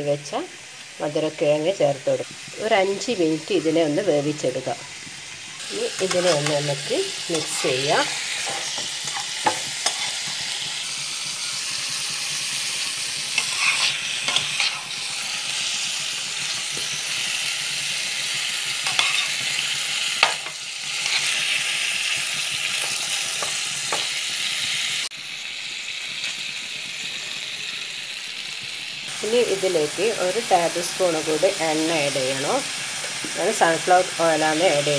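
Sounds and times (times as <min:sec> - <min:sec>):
food sizzling in hot oil: 0:00.0 - 0:34.9
spatula scraping a pan: 0:04.8 - 0:10.8, 0:13.3 - 0:15.2, 0:18.8 - 0:19.6, 0:20.2 - 0:21.8.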